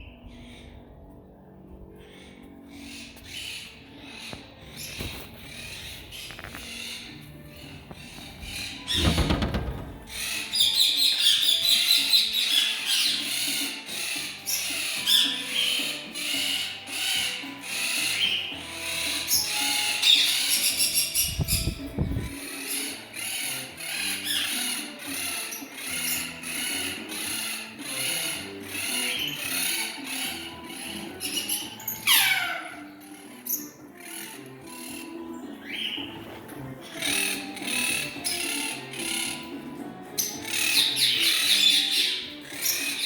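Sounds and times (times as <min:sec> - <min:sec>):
cage birds chirping: 0:00.0 - 0:43.0.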